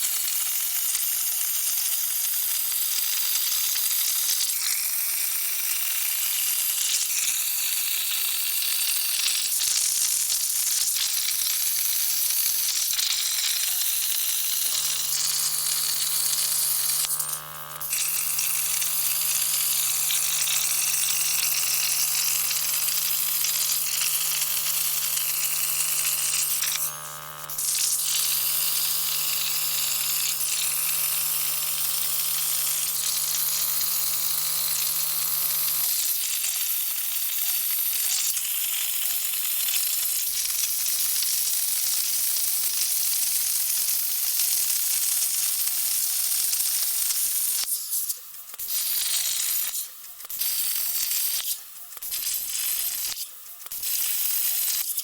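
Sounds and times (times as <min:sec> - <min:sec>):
plasma torch hissing: 0:14.4 - 0:35.8
steady low hum: 0:14.7 - 0:35.8.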